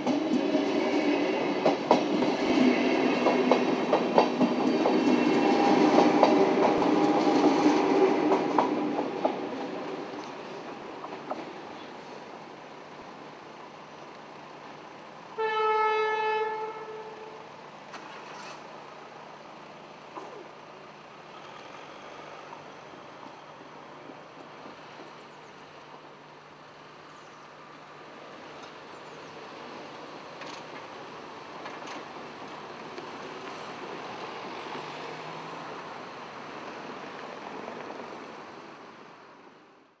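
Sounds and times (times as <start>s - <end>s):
train running noise: 0.0s - 39.7s
train horn blast: 15.4s - 17.5s.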